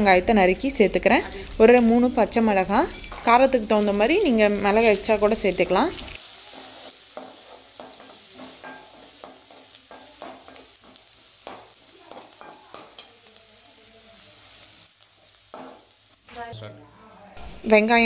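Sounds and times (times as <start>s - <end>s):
onion sizzling in oil: 0.0s - 16.6s, 17.4s - 18.0s
metal spatula scraping pan: 2.8s - 4.0s.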